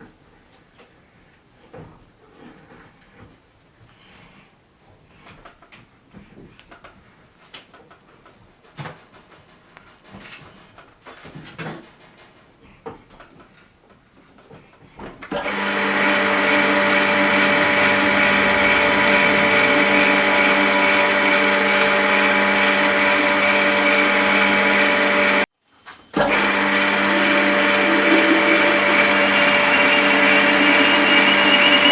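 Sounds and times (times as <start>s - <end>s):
motor-driven machine humming: 15.4s - 25.5s, 26.2s - 31.9s.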